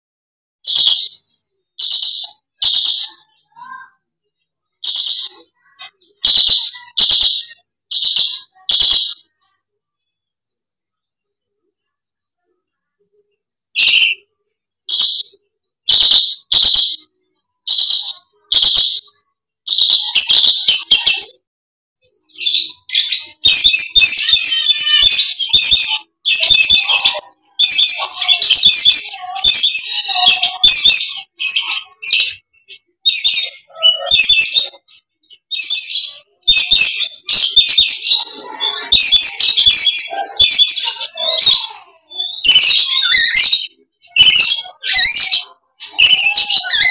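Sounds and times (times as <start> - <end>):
parrots screeching: 0.7 - 1.2, 1.8 - 4.0, 4.8 - 9.3, 13.8 - 14.2, 14.9 - 15.3, 15.9 - 17.1, 17.7 - 21.4, 22.3 - 46.9.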